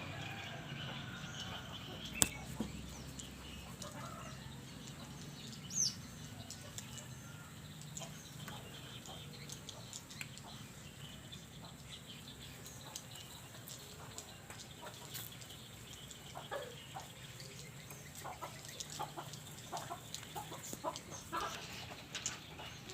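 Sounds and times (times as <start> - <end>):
short clucking bird calls: 1.8 - 4.3.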